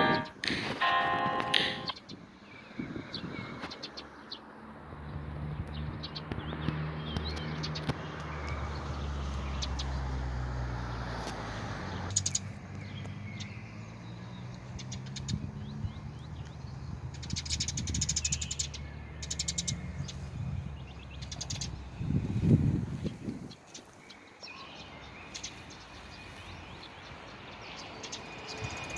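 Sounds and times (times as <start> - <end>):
small birds chirping and trilling: 1.4 - 10.3, 11.5 - 28.9.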